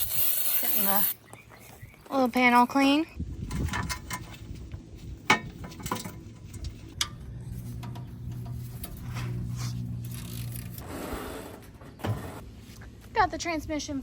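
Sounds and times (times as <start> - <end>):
low machine hum: 6.3 - 10.9.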